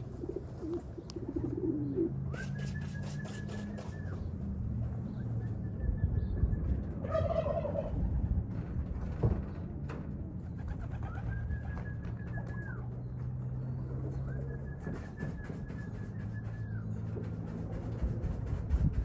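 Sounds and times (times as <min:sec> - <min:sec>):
pigeons cooing: 0:00.0 - 0:04.3, 0:10.4 - 0:19.0.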